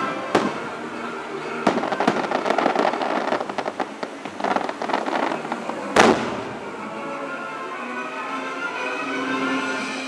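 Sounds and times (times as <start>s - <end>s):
fireworks crackling pops: 0.0s - 0.7s, 1.5s - 6.6s
loud firework bang: 6.0s - 6.6s.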